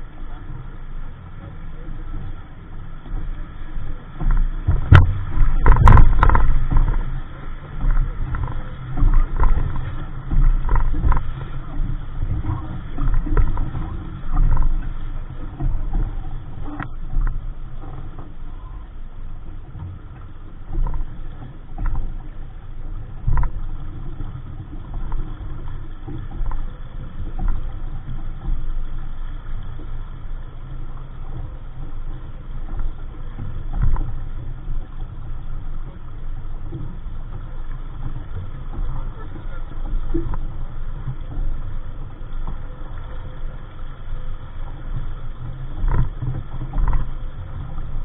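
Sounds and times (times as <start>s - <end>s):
water rushing past boat: 0.0s - 48.0s
wind buffeting microphone: 3.1s - 18.4s.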